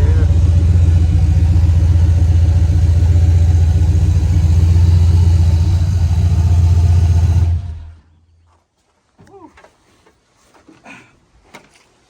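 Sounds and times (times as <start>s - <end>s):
vee eight engine running: 0.0s - 8.1s.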